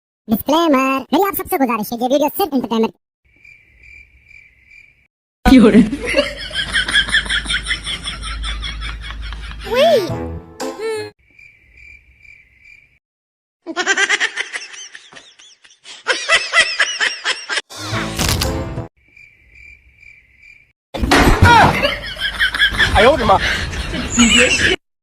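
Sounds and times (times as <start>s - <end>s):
cartoon giggle-like sounds: 7.2s - 10.2s, 13.6s - 17.6s.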